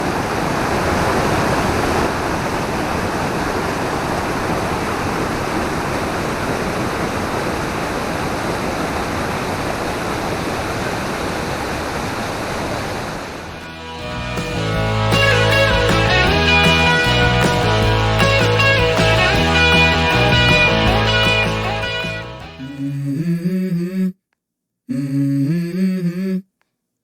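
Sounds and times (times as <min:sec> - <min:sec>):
guitar music: 0:13.5 - 0:22.8.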